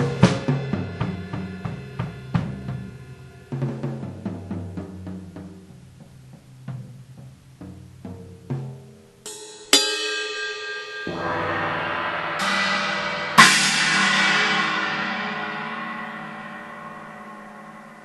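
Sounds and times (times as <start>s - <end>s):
cymbal crashes: 9.8s - 18.0s
low tom hits: 11.1s - 18.0s.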